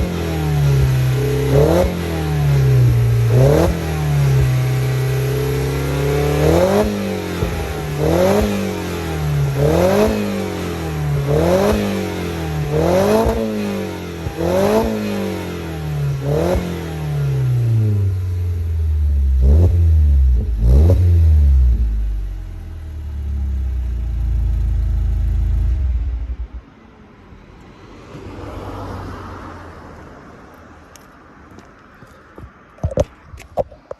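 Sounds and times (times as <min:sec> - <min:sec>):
car engine idling: 0:00.0 - 0:26.6
car engine revving: 0:00.0 - 0:26.6.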